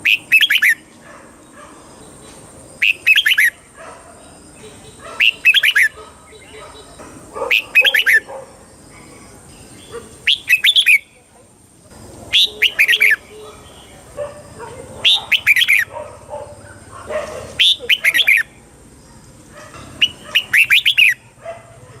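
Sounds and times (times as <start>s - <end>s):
bird singing whistled notes: 0.0s - 0.9s, 2.8s - 3.6s, 4.6s - 8.3s, 9.5s - 11.2s, 12.3s - 14.0s, 15.0s - 15.9s, 17.6s - 18.5s, 20.0s - 21.2s.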